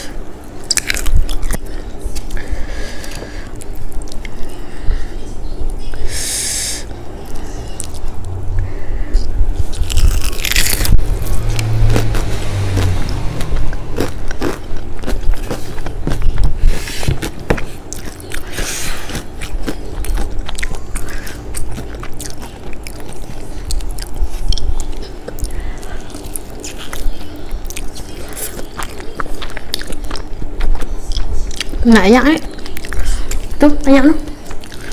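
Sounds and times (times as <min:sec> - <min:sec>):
person chewing crispy fried chicken: 0:00.6 - 0:04.6, 0:09.6 - 0:31.8, 0:32.5 - 0:33.6, 0:34.3 - 0:34.9.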